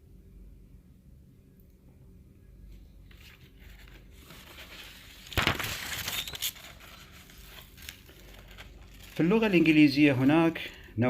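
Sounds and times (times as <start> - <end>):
rustling crinkling noise: 2.7 - 10.9.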